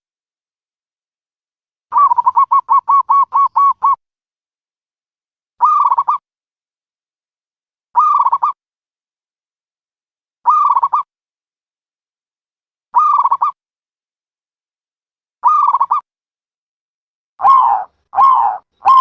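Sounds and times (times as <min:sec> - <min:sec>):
dove cooing: 0:17.4 - 0:19.0.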